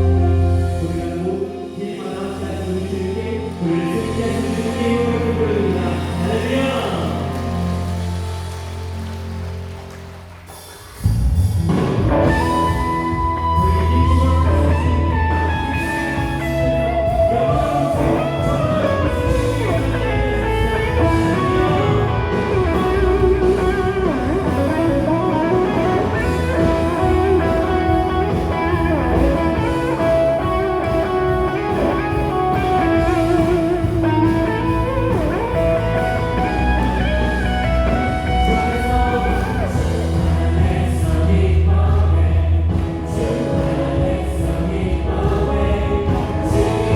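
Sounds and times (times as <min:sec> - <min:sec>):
electric guitar melody: 0:00.0 - 0:02.0, 0:11.7 - 0:40.8
worship band playing: 0:00.0 - 0:46.9.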